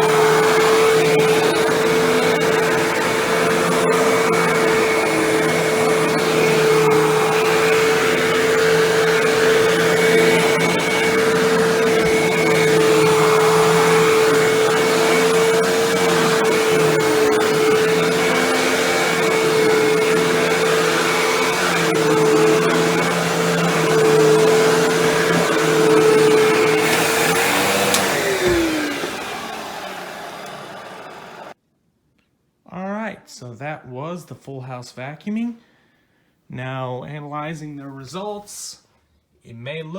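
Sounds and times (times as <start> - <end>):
vacuum cleaner motor whine: 0.0 - 31.6.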